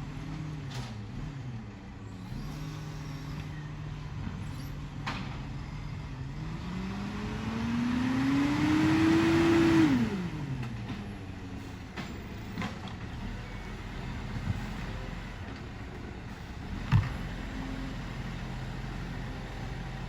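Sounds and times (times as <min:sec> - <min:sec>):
diesel truck engine revving: 0:00.0 - 0:20.0.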